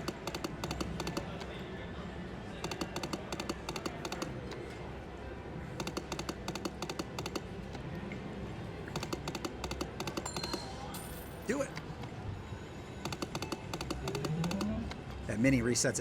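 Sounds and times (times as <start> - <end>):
slot machine clicking and ticking: 0.0 - 1.6, 2.6 - 4.7, 5.8 - 7.8, 8.9 - 12.1, 13.0 - 15.9
casino background din: 0.0 - 16.0.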